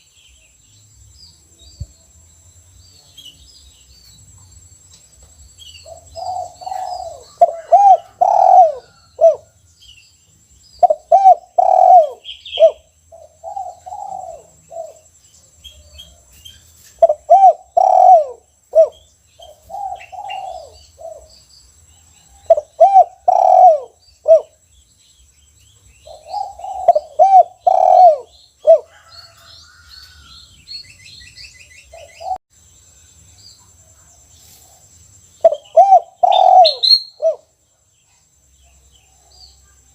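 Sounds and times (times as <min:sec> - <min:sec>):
small birds chirping: 0:00.0 - 0:39.9
dove cooing: 0:05.8 - 0:09.6, 0:10.8 - 0:15.1, 0:17.0 - 0:21.3, 0:22.4 - 0:24.6, 0:26.0 - 0:29.5, 0:35.4 - 0:37.5.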